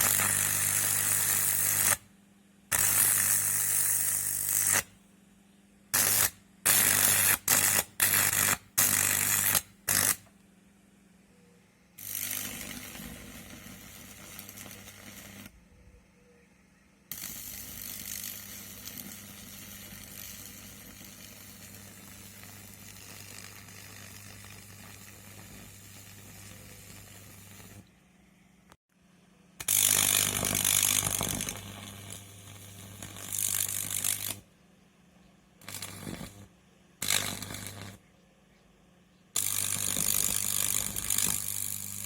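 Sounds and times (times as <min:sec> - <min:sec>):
high-voltage crackling and sizzling: 0:00.0 - 0:02.0, 0:02.7 - 0:04.9, 0:06.0 - 0:10.3, 0:12.0 - 0:15.5, 0:17.1 - 0:27.9, 0:29.6 - 0:34.5, 0:35.6 - 0:38.0, 0:39.4 - 0:42.0.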